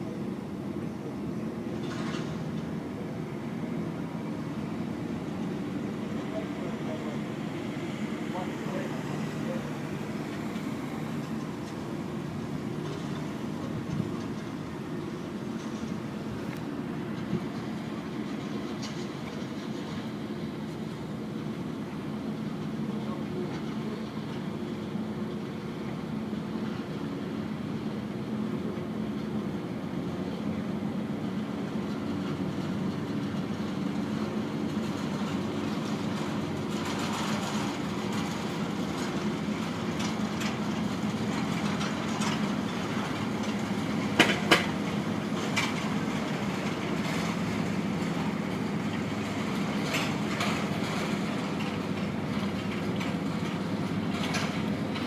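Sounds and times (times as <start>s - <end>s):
vehicle rumbling: 0.0s - 55.0s.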